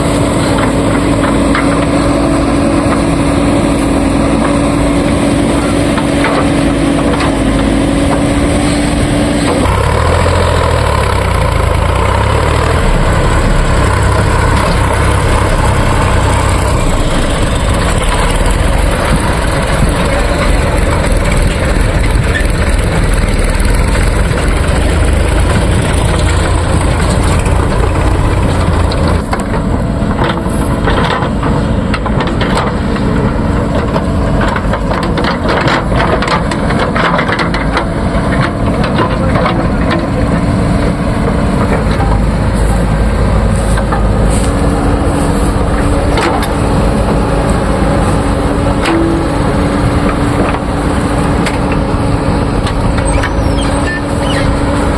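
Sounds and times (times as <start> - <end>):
diesel engine working: 0.0 - 54.9
sharp knocks and clatters: 13.8 - 42.7.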